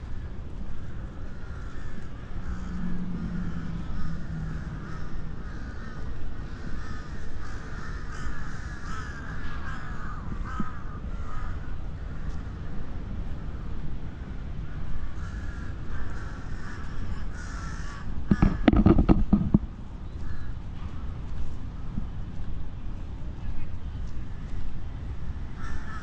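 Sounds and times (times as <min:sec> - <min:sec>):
steady low rumble: 0:00.0 - 0:26.0
crows cawing: 0:00.1 - 0:12.8, 0:14.6 - 0:19.4, 0:20.2 - 0:20.6, 0:25.6 - 0:26.0.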